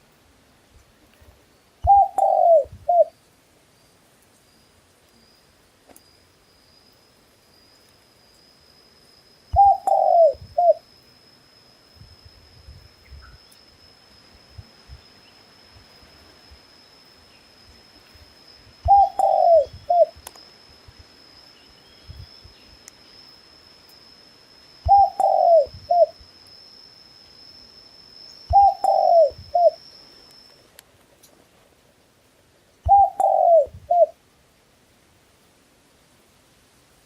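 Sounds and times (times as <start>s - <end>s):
dove cooing: 1.8s - 3.1s, 9.5s - 10.8s, 18.8s - 20.2s, 24.8s - 26.2s, 28.5s - 29.8s, 32.9s - 34.2s
steady high-pitched tone: 6.1s - 30.8s.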